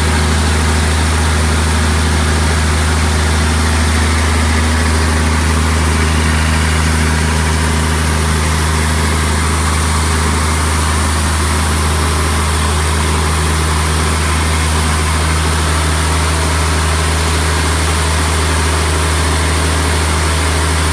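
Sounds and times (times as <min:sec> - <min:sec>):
diesel engine droning: 0:00.0 - 0:20.9.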